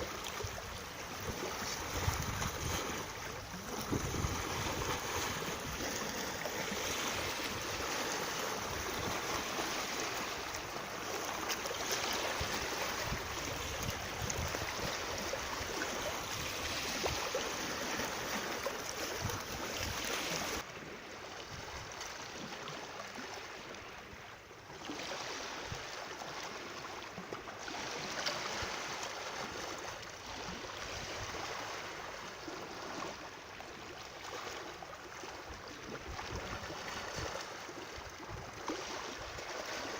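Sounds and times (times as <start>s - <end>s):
water rushing: 0.0s - 20.6s.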